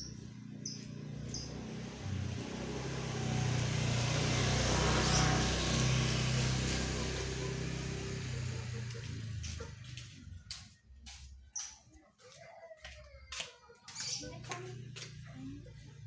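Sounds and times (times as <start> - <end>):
vehicle passing by: 0.0 - 11.3.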